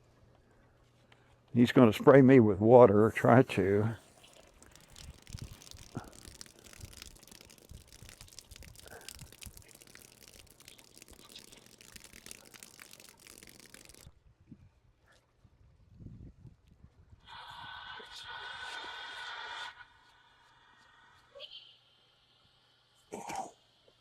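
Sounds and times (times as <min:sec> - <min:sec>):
water splashing and trickling: 0:03.5 - 0:14.2
small crackling clicks: 0:04.2 - 0:14.1.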